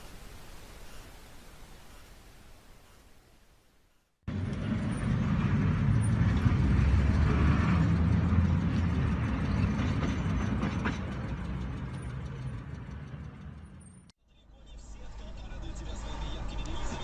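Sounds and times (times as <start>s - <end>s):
vehicle engine drone: 4.3s - 17.0s.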